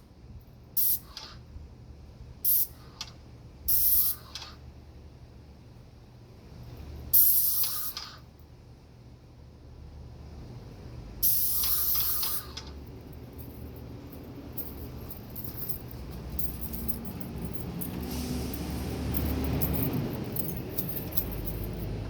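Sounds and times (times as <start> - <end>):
low steady hum: 4.7 - 7.2, 11.9 - 22.0
paint sprayer gun hissing: 7.2 - 8.2, 11.2 - 12.7.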